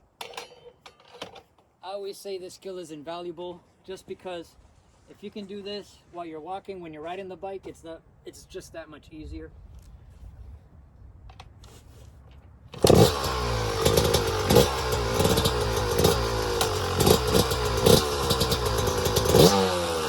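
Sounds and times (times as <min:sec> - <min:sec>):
engine throttle blips: 0:12.7 - 0:20.0
dirt bike engine idling: 0:12.8 - 0:20.0.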